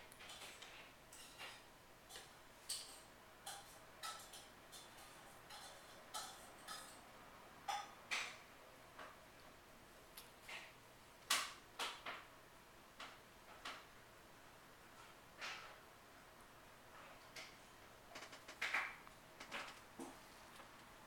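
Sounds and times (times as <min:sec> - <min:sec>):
utensil clinking against a dish: 0:00.2 - 0:07.1.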